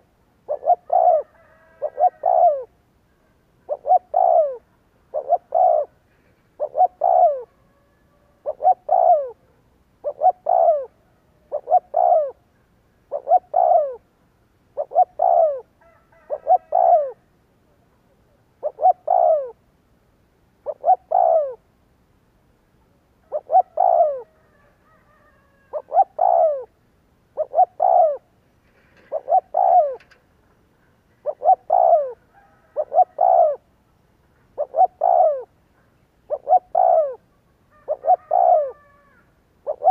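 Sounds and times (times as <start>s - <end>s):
dove cooing: 0.0s - 14.1s, 14.7s - 17.9s, 18.6s - 19.6s, 20.6s - 21.7s, 23.2s - 26.8s, 27.4s - 33.8s, 34.4s - 35.6s, 36.2s - 39.9s.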